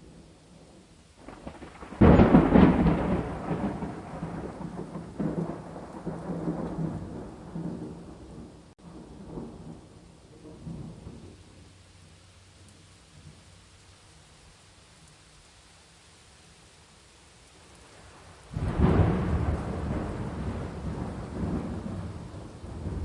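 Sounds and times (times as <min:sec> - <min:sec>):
thunderclap rolling rumble: 0:00.0 - 0:11.9, 0:17.9 - 0:23.0
steady rain: 0:00.0 - 0:23.0.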